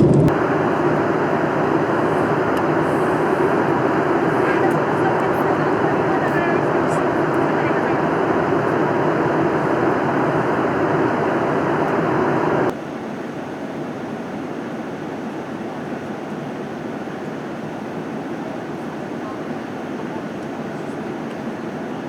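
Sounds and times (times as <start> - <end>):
aircraft cabin noise rushing: 0.0 - 12.7.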